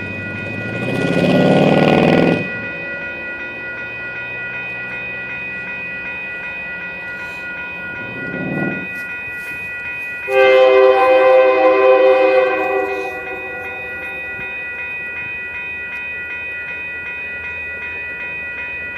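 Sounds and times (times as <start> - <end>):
diesel locomotives running: 0.0 - 18.9
locomotive horn blowing: 10.3 - 14.3.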